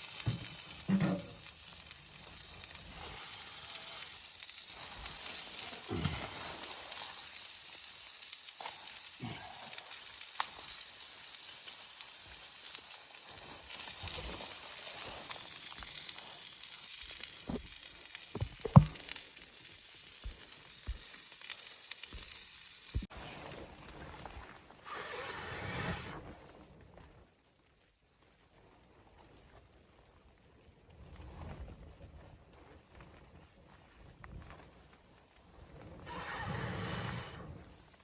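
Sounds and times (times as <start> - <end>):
steady sizzling hiss: 0.0 - 23.1
knocks and clicks: 18.4 - 19.0.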